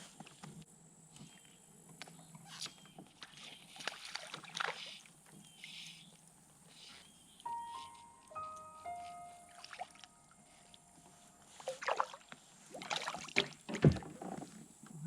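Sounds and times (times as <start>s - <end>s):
water splashing around boat: 3.1s - 6.0s, 11.5s - 14.8s
musical tones: 7.5s - 12.4s.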